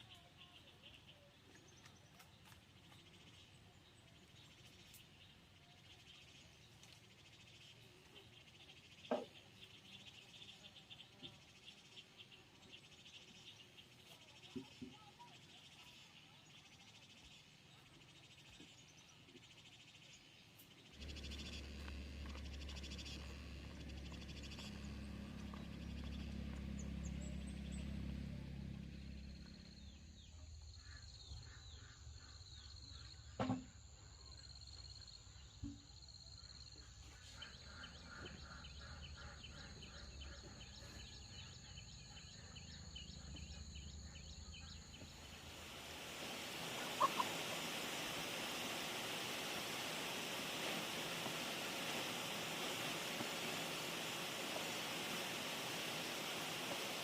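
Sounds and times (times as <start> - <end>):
chicks peeping: 46.2 - 49.2.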